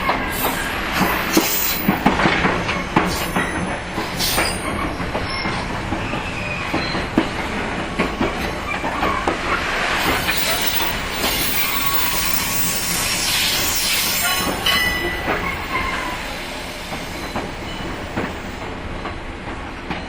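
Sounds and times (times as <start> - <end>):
electric train rumbling: 0.0 - 20.0
high wheel squeals: 10.0 - 16.4.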